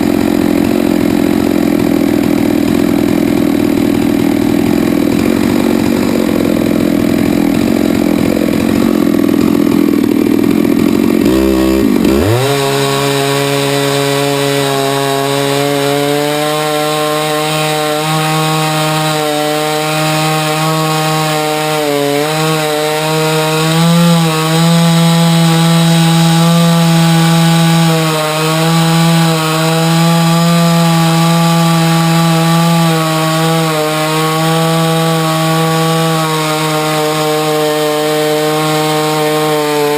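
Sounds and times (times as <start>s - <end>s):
chainsaw milling a log: 0.0s - 39.9s.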